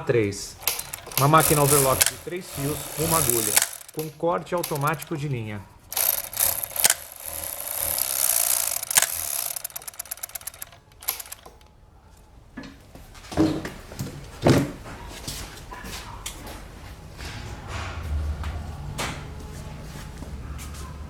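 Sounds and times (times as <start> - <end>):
sewing machine stitching fast: 0.6 - 5.1, 5.9 - 11.5.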